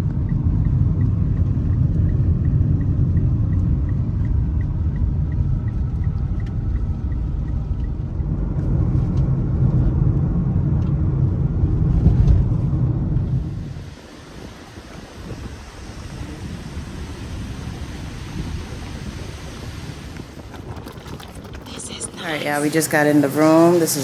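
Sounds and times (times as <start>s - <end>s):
faint rapid ticking: 0.0s - 9.2s
vehicle rumble: 0.0s - 24.0s.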